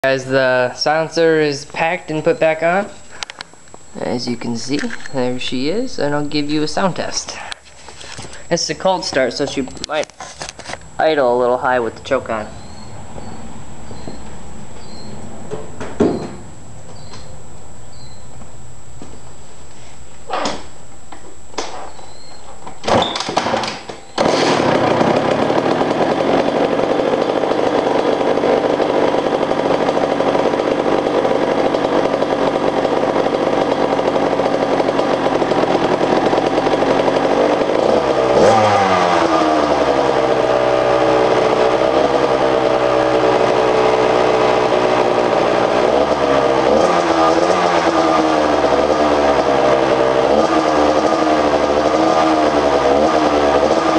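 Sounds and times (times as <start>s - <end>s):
dirt bike engine starting and idling: 0.0s - 53.9s
engine revving: 23.4s - 53.9s.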